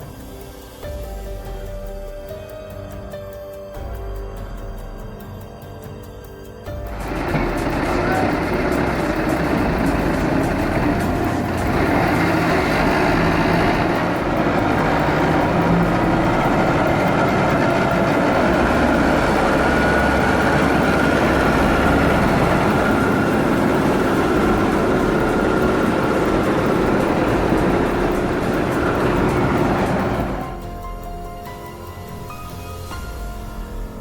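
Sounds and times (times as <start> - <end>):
heavy vehicle engine roaring: 6.8 - 30.8.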